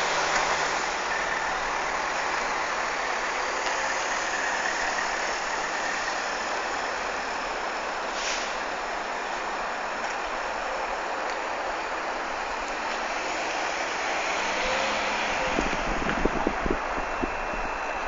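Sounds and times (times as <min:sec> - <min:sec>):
car road and tyre noise: 0:00.0 - 0:18.0.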